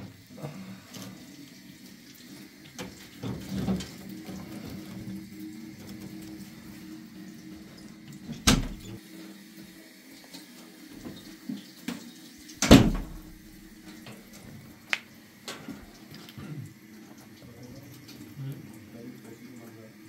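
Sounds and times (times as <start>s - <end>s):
loud knocks on stove: 12.6s - 13.3s.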